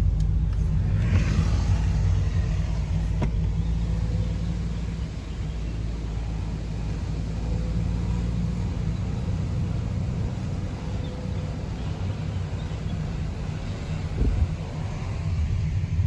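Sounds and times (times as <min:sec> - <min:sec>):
car engine rumble: 0:00.0 - 0:16.0
road noise: 0:00.0 - 0:16.0
low thump: 0:02.9 - 0:03.6.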